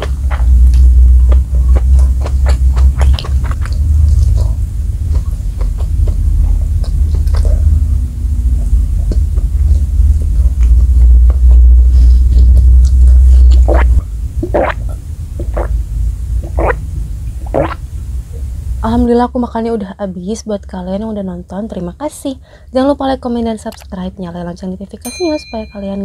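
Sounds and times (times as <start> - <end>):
chewing with wet mouth clicks: 0.0 - 7.8, 8.6 - 14.0, 23.7 - 23.9
deep low rumble: 0.0 - 19.8
gulps of water: 13.3 - 15.8, 17.5 - 17.8.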